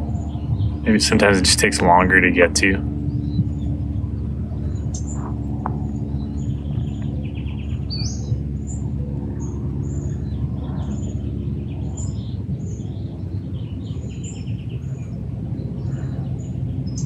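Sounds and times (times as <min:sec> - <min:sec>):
steady low hum: 0:00.0 - 0:17.0
small birds chirping: 0:04.6 - 0:17.0.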